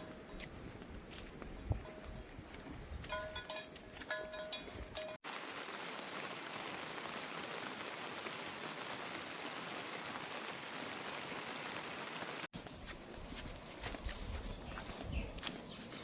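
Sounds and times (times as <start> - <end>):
rain falling: 5.0 - 12.6.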